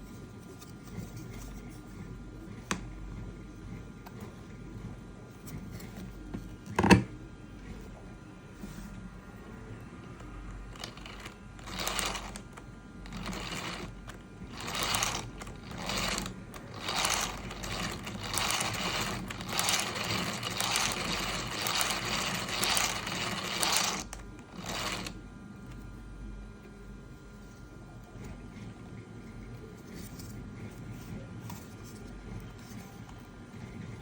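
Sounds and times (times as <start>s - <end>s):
plastic gears whirring and rattling: 10.5s - 25.2s, 29.8s - 34.0s.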